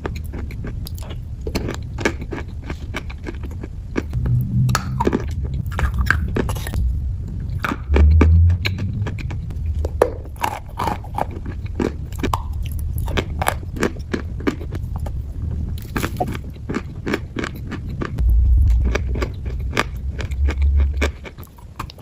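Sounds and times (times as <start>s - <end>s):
chalk crunching while chewing: 0.0s - 4.2s, 10.2s - 18.2s
loud low rumble: 4.0s - 13.1s, 17.8s - 22.0s.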